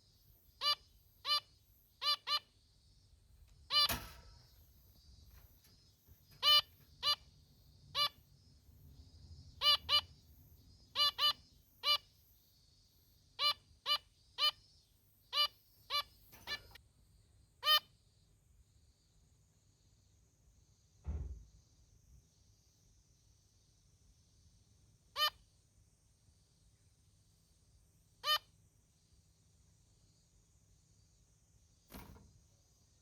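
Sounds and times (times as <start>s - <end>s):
finch meep calls: 0.6s - 2.5s, 3.7s - 4.0s, 6.4s - 7.3s, 7.9s - 8.2s, 9.6s - 10.1s, 10.9s - 12.1s, 13.4s - 14.6s, 15.3s - 16.8s, 25.2s - 25.4s, 28.2s - 28.5s.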